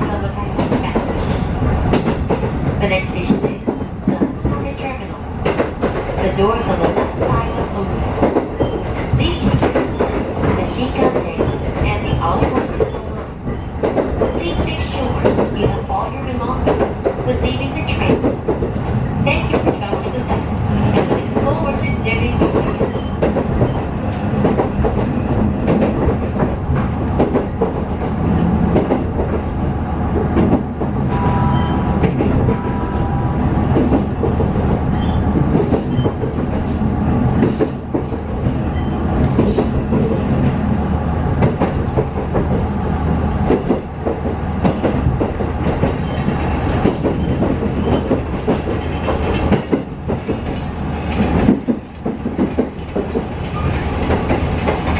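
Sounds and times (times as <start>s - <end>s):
train running rumble: 0.0s - 54.9s
wheels clacking over rail joints: 43.5s - 54.9s.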